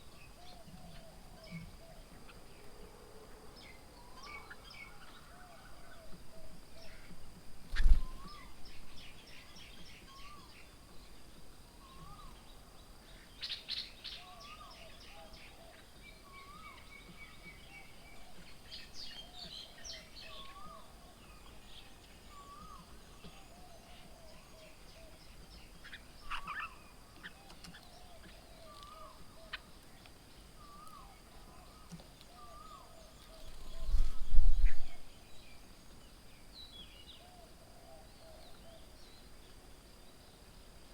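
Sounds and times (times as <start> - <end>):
birds chirping: 3.5 - 40.6
birds calling: 11.8 - 39.4.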